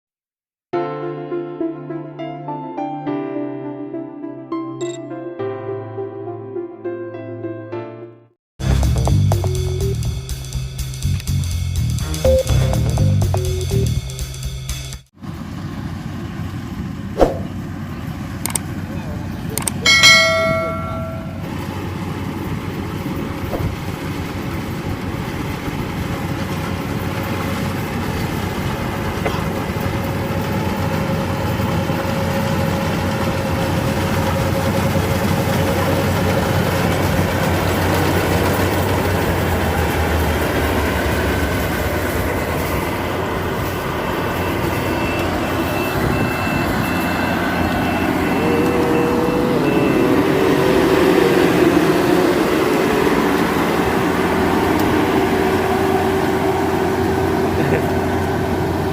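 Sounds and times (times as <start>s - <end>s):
high beep: 4.8s - 5.0s, 12.3s - 13.8s
combine harvester engine running: 8.6s - 10.5s, 15.2s - 58.9s.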